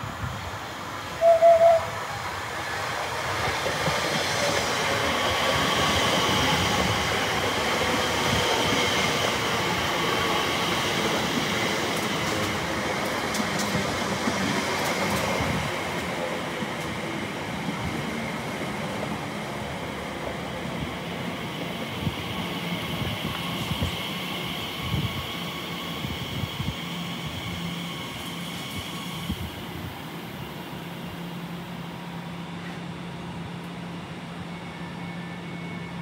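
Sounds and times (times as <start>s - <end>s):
electric train whine: 0.0s - 36.0s
rail and wheel noise: 0.0s - 36.0s.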